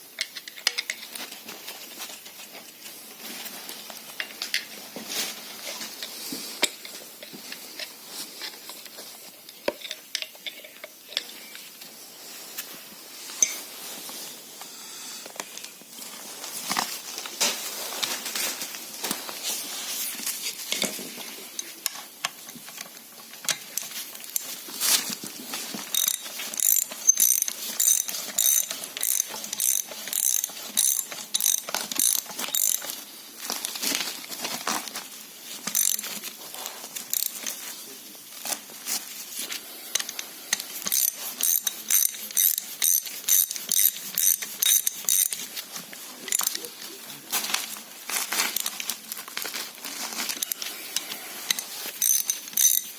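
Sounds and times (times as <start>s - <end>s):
ratchet clicking: 25.9s - 33.0s, 35.7s - 36.1s, 37.1s - 37.6s, 39.9s - 45.4s, 46.3s - 46.6s, 51.5s - 52.9s.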